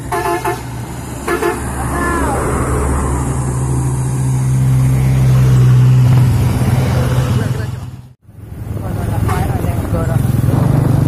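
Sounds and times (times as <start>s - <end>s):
multi-tone horn bursts: 0.1s - 1.7s.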